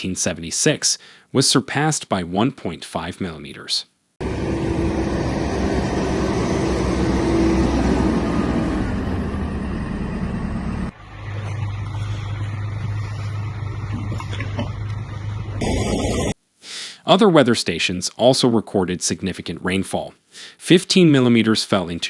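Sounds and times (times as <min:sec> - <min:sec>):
low engine hum: 0:04.2 - 0:16.4
road noise: 0:04.2 - 0:16.4
vehicle engines running: 0:04.2 - 0:16.4.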